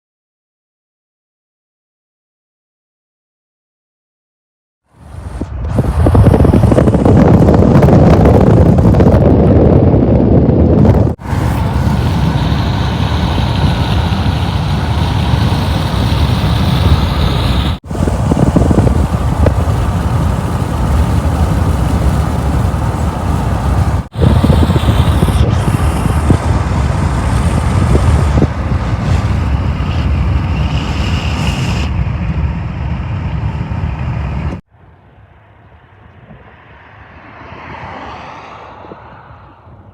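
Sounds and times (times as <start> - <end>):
train wheels rumbling on rails: 10.8 - 31.8.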